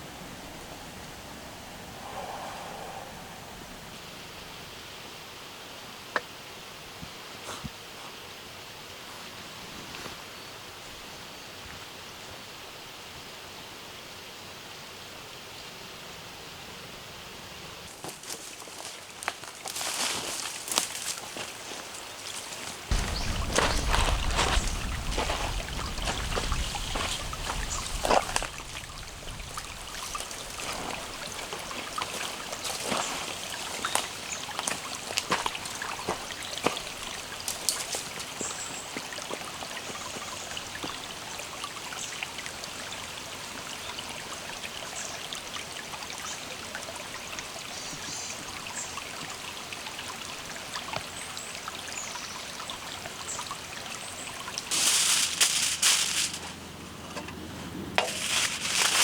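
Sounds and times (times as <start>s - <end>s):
trickling water: 18.3s - 57.4s, 58.0s - 59.0s.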